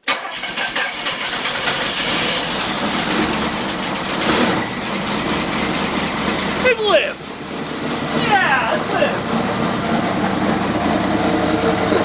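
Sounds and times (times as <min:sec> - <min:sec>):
car engine rumbling: 0:00.1 - 0:12.0.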